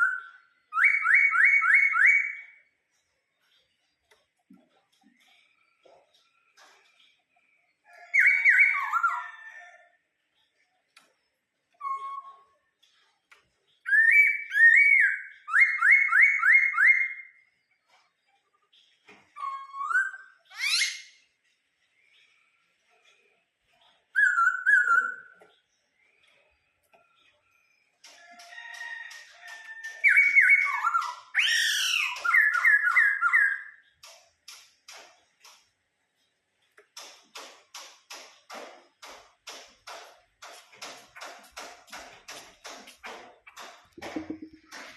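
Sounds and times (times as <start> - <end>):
bird singing in clear whistles: 0.0 - 2.6, 11.7 - 12.6, 13.8 - 17.4, 19.4 - 21.1, 24.1 - 25.4, 30.0 - 33.8.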